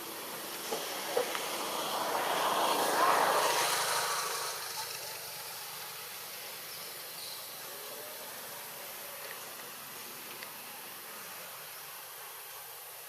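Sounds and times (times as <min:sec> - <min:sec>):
vehicle passing by: 0:00.0 - 0:06.8.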